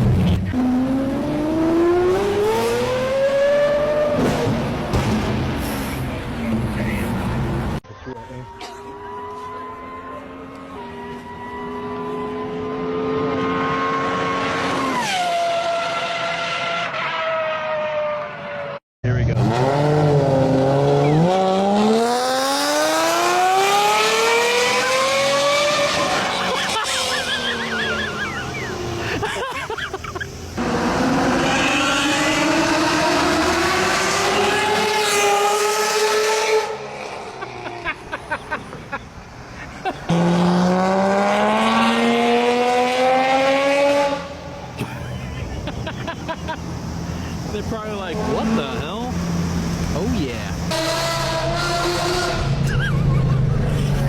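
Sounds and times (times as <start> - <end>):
supercar engine revving: 0.0 - 7.8, 19.1 - 29.2, 30.4 - 37.9, 40.0 - 44.8, 46.6 - 54.0.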